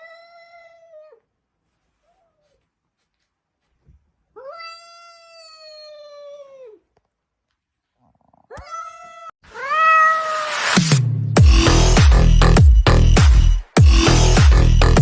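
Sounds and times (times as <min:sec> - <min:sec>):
cat meowing: 0:04.4 - 0:06.9, 0:08.5 - 0:10.7
electronic music with bass beat: 0:10.7 - 0:15.0.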